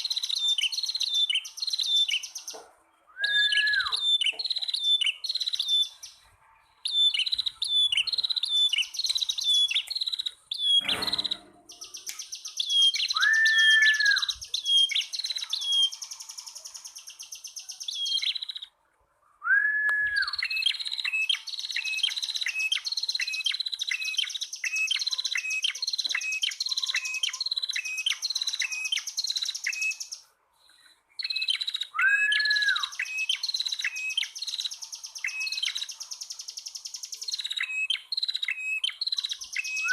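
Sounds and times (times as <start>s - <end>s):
bird chirps and trill: 0.0s - 2.6s, 3.2s - 18.8s, 19.5s - 30.3s, 31.2s - 39.9s
low slurred bird whistles: 3.1s - 5.2s, 6.9s - 16.0s, 19.4s - 30.1s, 31.2s - 34.6s, 37.4s - 39.9s
thump: 10.8s - 11.7s.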